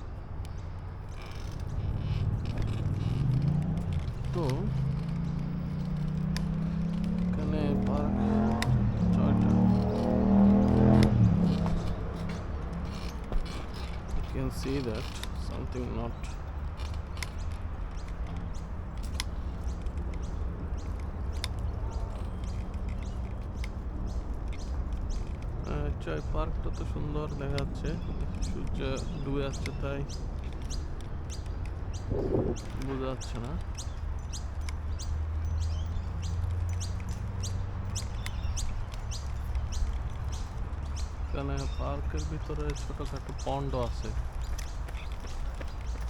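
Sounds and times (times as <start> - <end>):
birds chirping: 0.0 - 46.0
steady low rumble: 31.8 - 33.6.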